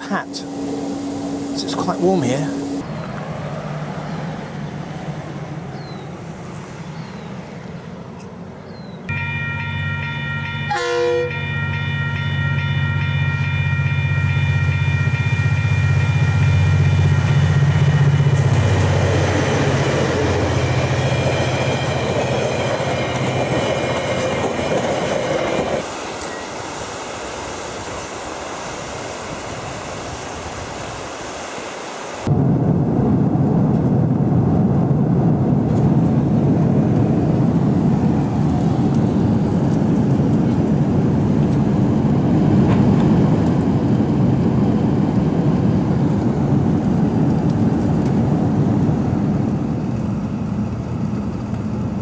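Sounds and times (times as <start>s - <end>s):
rushing noise: 0.0s - 5.2s
held chord of high tones: 9.1s - 17.1s.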